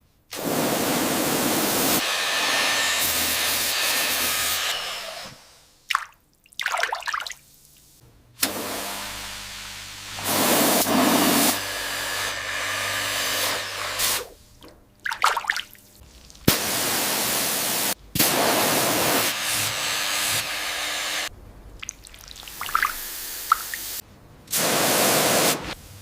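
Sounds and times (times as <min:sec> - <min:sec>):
power tool running: 0:01.3 - 0:05.6, 0:08.4 - 0:14.4, 0:16.5 - 0:21.3.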